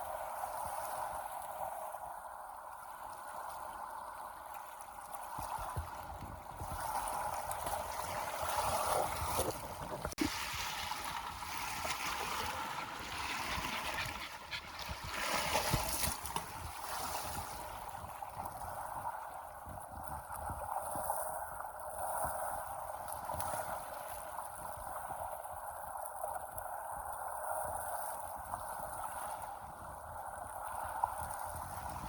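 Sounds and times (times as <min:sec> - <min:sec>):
lake water lapping: 0:04.6 - 0:19.3.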